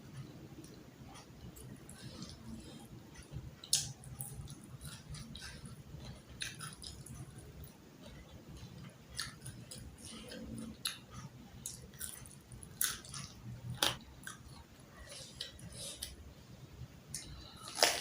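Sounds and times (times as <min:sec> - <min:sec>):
person chewing food: 0:00.5 - 0:16.4, 0:17.1 - 0:18.0
food crunching: 0:03.6 - 0:16.2, 0:17.1 - 0:18.0.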